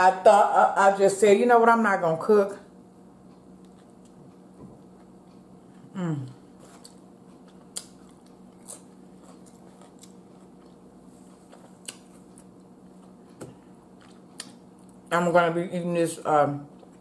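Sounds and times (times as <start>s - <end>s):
faint steady hum: 0.0s - 17.0s
person chewing bread: 3.2s - 15.1s
appreciative mmm: 3.3s - 15.1s.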